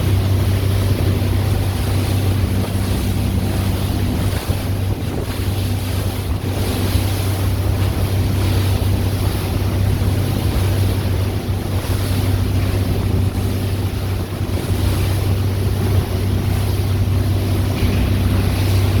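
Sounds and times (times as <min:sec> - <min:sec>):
motorboat engine droning: 0:00.0 - 0:19.0
water rushing past hull: 0:00.0 - 0:19.0
wind buffeting microphone: 0:00.0 - 0:19.0.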